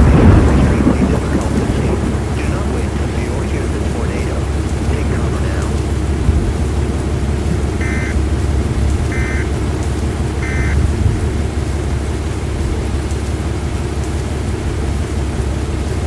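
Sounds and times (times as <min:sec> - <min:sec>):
wind noise: 0:00.0 - 0:12.9
heavy rain: 0:00.0 - 0:16.0
short electronic beeps: 0:07.8 - 0:08.2, 0:09.1 - 0:09.5, 0:10.4 - 0:10.8.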